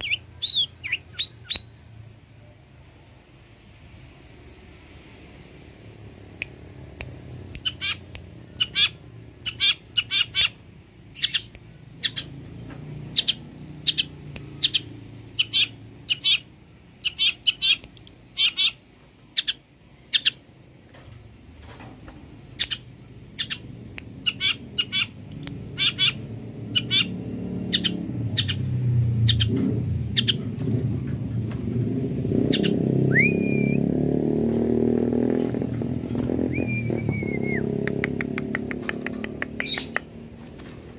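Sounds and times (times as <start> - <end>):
low engine-like rumble: 0.0 - 40.9
bird harsh calls: 7.6 - 10.6, 13.1 - 18.8, 22.6 - 30.5, 32.4 - 33.4
bird rising whistle: 33.1 - 33.8, 36.5 - 37.7.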